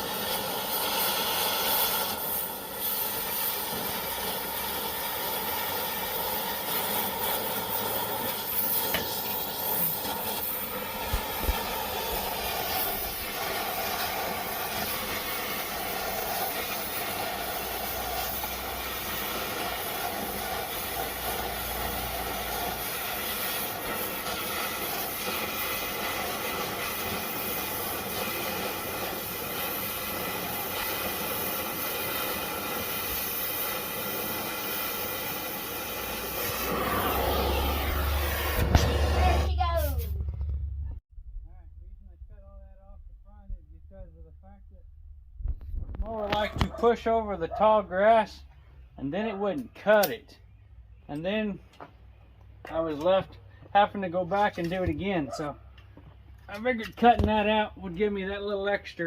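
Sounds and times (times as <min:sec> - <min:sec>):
cutting torch hissing: 0:00.0 - 0:40.1.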